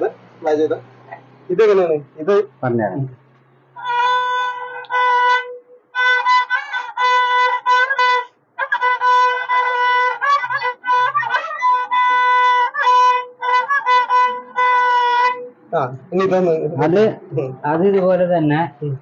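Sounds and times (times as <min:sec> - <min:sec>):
bowed coconut-shell violin: 0:03.8 - 0:17.5.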